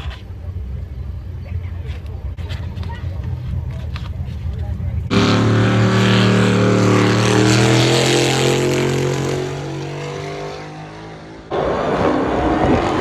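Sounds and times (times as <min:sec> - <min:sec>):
car engine running loudly: 0:04.9 - 0:13.0.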